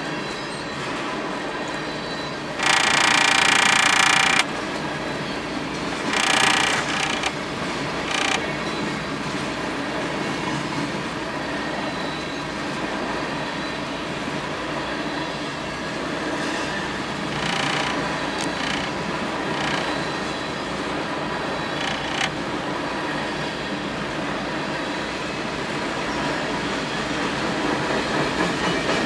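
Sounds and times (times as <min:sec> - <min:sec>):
train wheels rumbling on rail: 0:00.0 - 0:29.0
high-pitched wheel squeal: 0:01.9 - 0:04.5, 0:06.1 - 0:07.4, 0:08.0 - 0:08.8, 0:17.3 - 0:18.9.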